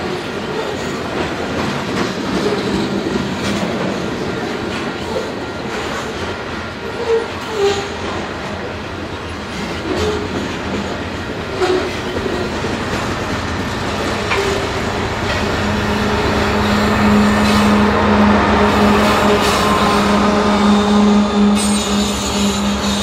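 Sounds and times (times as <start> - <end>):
freight train wheels clattering: 0.0 - 23.0
locomotive engine hum: 8.6 - 23.0.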